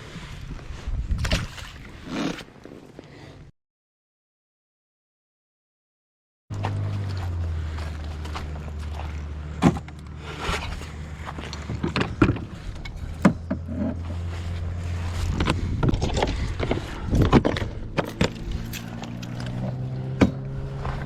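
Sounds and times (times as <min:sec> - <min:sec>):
knocks and clatter of gear: 0:06.5 - 0:14.2, 0:14.8 - 0:21.0
vehicle engine humming: 0:06.5 - 0:21.0.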